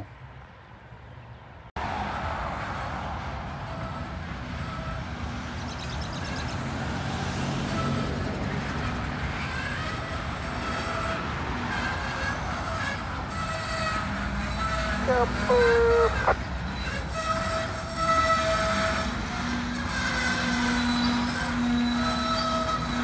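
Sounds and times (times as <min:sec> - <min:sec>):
freight train rumbling: 0:02.0 - 0:23.0
wheels squealing: 0:03.7 - 0:23.0.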